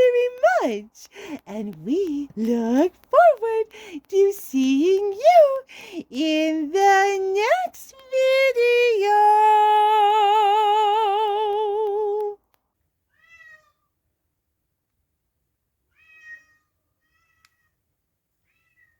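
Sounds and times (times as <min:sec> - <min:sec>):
cat meowing: 0:13.1 - 0:13.9, 0:15.9 - 0:17.7.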